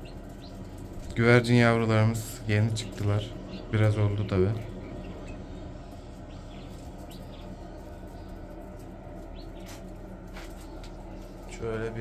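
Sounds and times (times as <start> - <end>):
steady low hum: 0.0 - 12.0
high bird chirps: 9.2 - 9.8.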